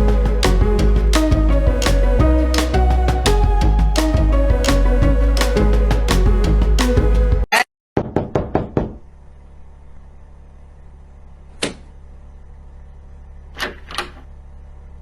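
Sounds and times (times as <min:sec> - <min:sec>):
low steady hum: 0:00.0 - 0:07.4, 0:08.9 - 0:15.0
knocking on a door: 0:08.0 - 0:09.0.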